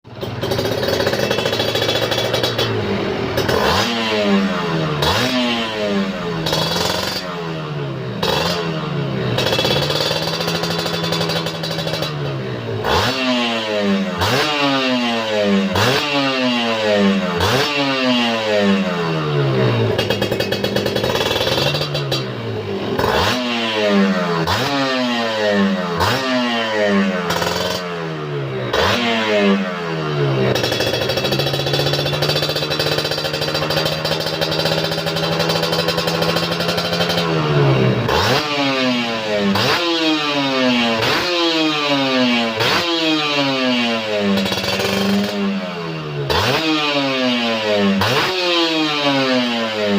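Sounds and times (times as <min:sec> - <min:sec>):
two-stroke motorcycle engine revving: 0:00.0 - 0:49.9.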